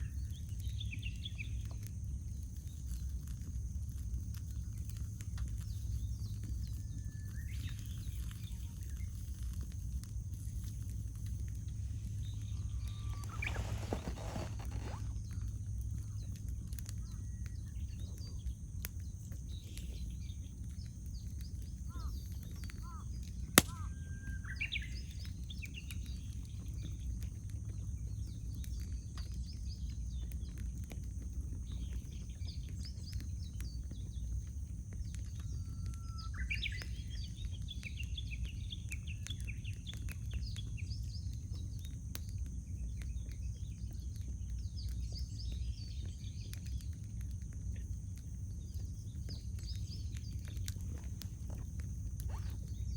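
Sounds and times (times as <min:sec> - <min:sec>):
birds singing: 0:00.0 - 0:03.2, 0:03.9 - 0:09.4, 0:10.4 - 0:52.9
campfire crackling and popping: 0:00.0 - 0:52.9
steady low rumble: 0:00.0 - 0:52.9.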